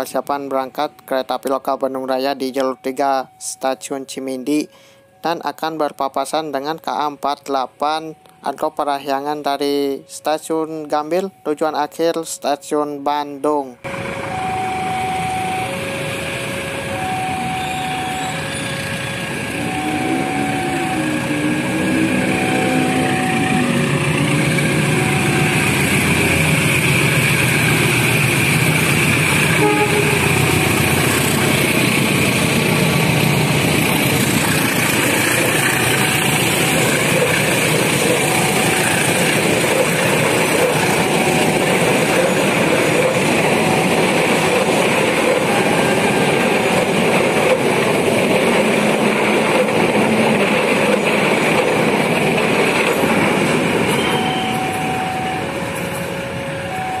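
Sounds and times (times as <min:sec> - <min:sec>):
diesel train passing: 0:00.0 - 0:57.0
level crossing alarm: 0:00.0 - 0:57.0
train horn: 0:14.4 - 0:26.9, 0:29.3 - 0:31.8, 0:53.9 - 0:57.0.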